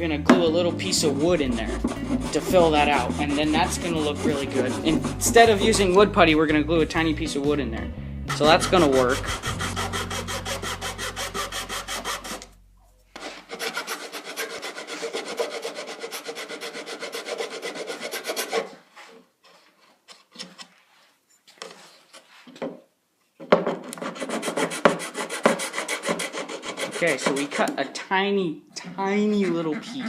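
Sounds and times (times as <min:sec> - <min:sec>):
hand file rasping on wood: 0:00.8 - 0:06.0, 0:08.3 - 0:12.5, 0:13.2 - 0:19.1, 0:23.8 - 0:27.8, 0:28.9 - 0:30.0.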